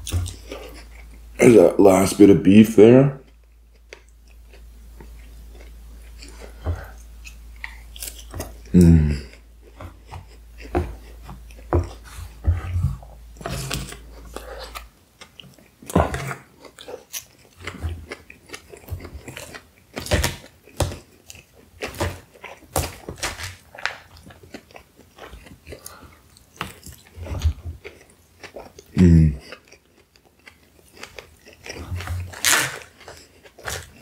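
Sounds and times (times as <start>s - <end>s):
close chewing with wet smacks: 9.3s - 12.7s, 13.4s - 34.0s.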